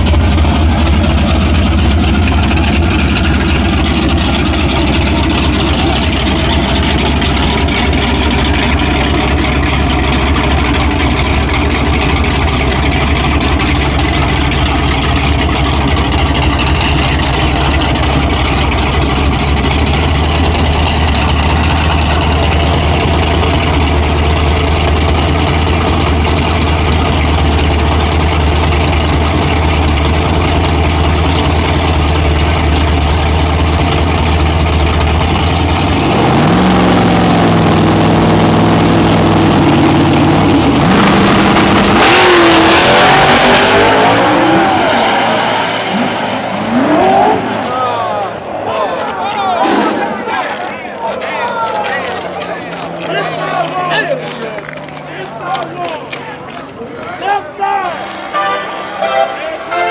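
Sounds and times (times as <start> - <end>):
car engines idling loudly: 0.0 - 59.9.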